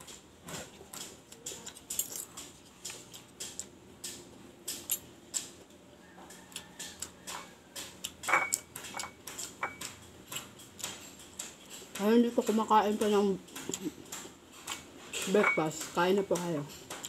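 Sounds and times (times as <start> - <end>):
chewing and lip smacks: 6.2 - 11.8.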